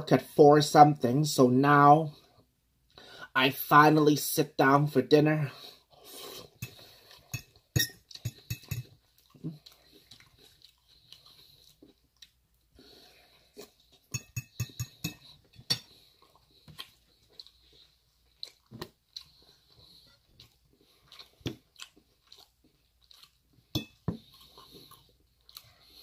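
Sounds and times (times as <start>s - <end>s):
person chewing food: 5.8s - 26.0s
fork tapping ceramic bowl: 7.4s - 8.9s, 14.1s - 15.8s.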